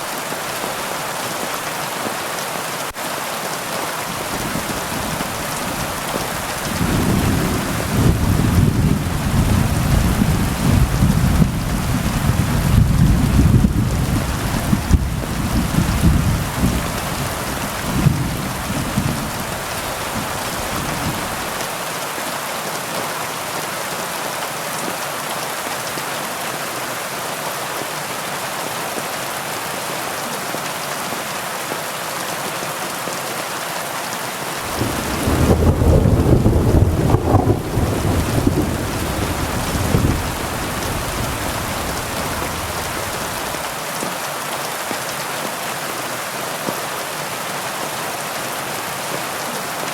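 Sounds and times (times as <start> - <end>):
heavy rain falling: 0.0 - 49.9
thunder rolling: 4.2 - 21.6, 34.7 - 43.6.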